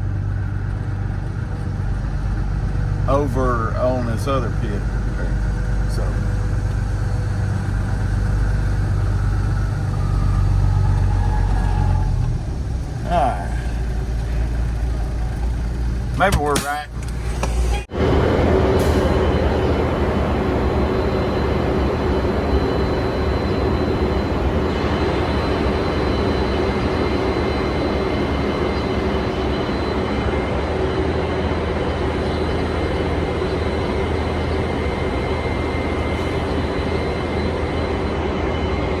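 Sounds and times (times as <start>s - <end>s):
diesel truck engine droning: 0.0s - 39.0s.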